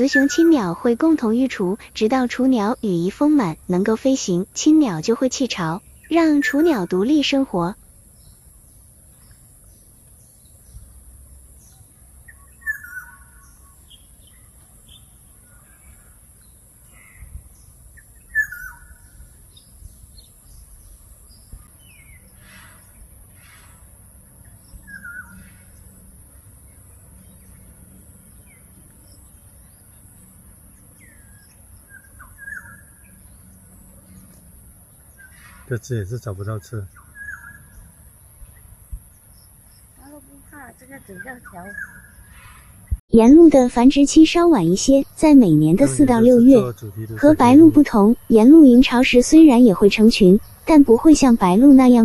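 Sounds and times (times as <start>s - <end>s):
birds chirping: 0.0s - 10.8s, 26.7s - 52.0s.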